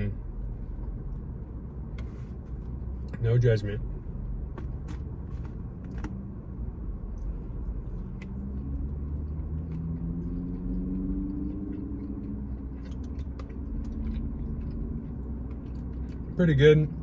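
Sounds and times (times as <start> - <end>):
steady low rumble: 0.0 - 17.0
chewing and mouth clicks: 7.2 - 16.4.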